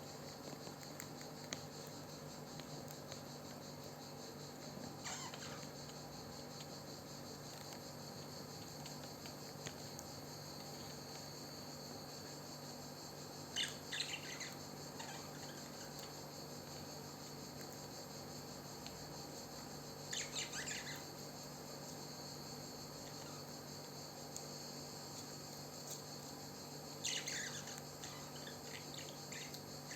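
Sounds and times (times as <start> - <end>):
crickets chirping: 0.0 - 29.9
parrot chirping: 5.0 - 5.6, 13.6 - 15.6, 20.1 - 21.0, 27.0 - 29.9.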